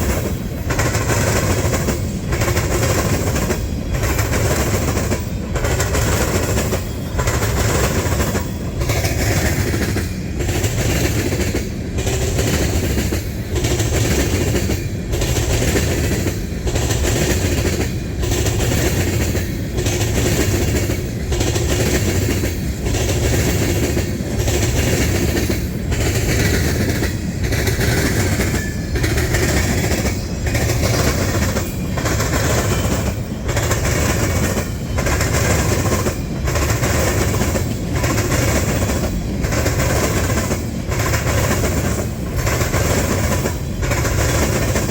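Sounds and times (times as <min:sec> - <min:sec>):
train wheels clattering: 0:00.0 - 0:44.9.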